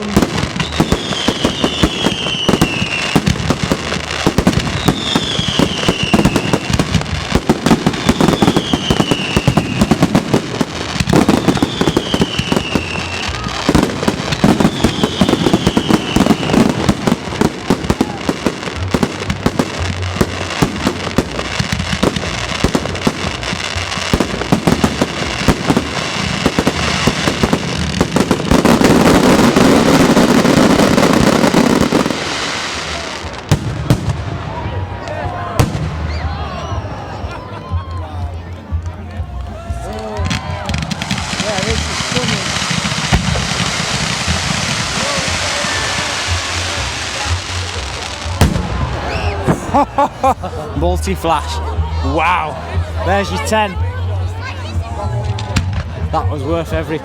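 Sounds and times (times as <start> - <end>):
fireworks falling whistle: 0.0 - 6.8, 7.8 - 10.4, 11.0 - 18.2, 40.3 - 49.7
fireworks bangs and crackling: 0.0 - 57.0.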